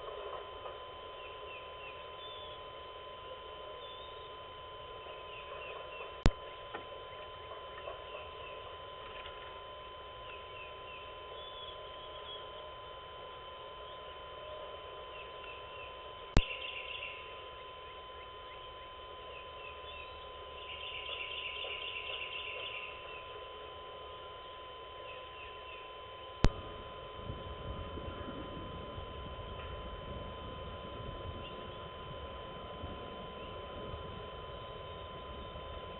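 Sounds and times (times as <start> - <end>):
songbirds chirping: 0.1 - 26.5, 34.4 - 35.9
bird trill: 1.1 - 2.8, 3.7 - 9.2, 9.8 - 12.7, 13.8 - 23.4, 25.0 - 26.1.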